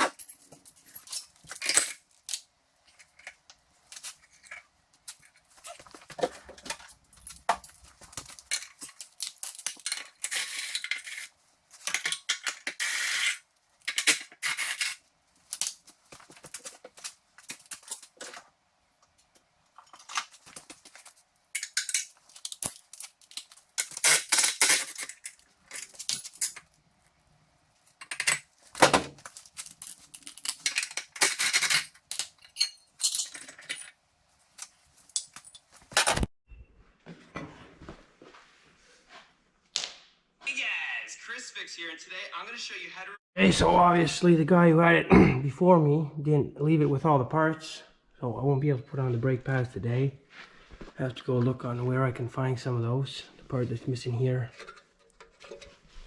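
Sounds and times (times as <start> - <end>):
metal tools clinking: 0.0 - 18.4, 19.8 - 26.8, 27.8 - 34.0.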